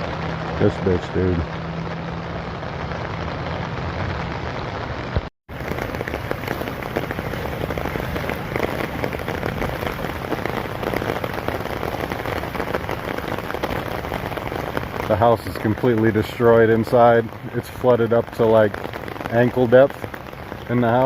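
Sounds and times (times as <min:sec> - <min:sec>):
low engine hum: 0:00.0 - 0:16.6
heavy rain pattering: 0:00.0 - 0:21.0.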